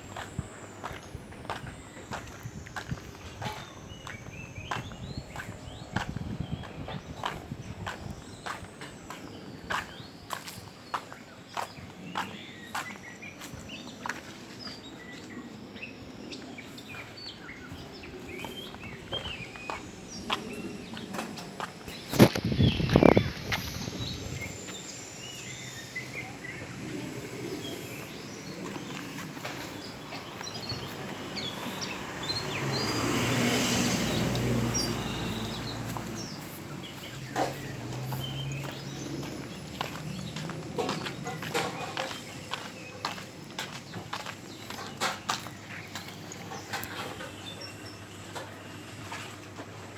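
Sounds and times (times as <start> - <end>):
outdoor background noise: 0.0 - 49.9
small birds chirping: 0.0 - 49.9
motor vehicle passing: 17.9 - 49.3.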